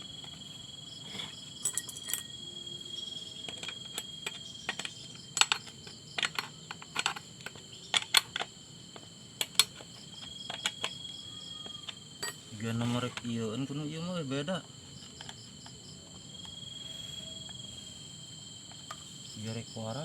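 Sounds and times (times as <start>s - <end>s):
crickets trilling: 0.0s - 20.0s
clicks of metal parts handled: 3.5s - 8.5s.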